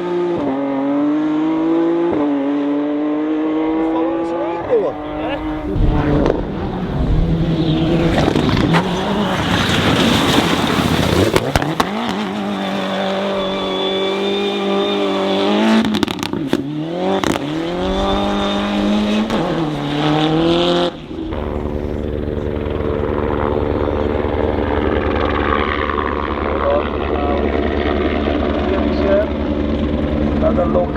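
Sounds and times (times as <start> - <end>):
rally car engine revving: 0.0 - 30.9
low throbbing mechanical drone: 4.6 - 9.6, 17.5 - 30.9.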